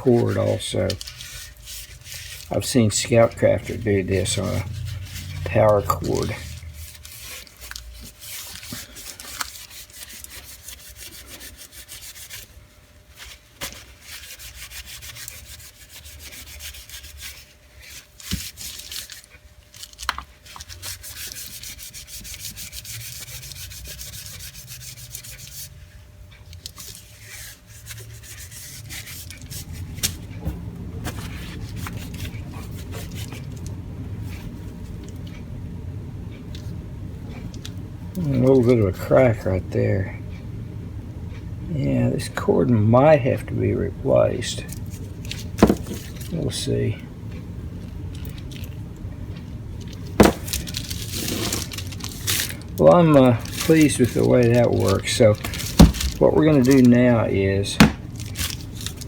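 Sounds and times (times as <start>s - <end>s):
wipe scrubbing a power cord: 0.0s - 12.6s, 13.2s - 18.6s, 20.5s - 25.8s, 50.0s - 59.0s
cord knocks: 45.6s - 46.0s, 50.2s - 50.6s, 57.8s - 58.1s.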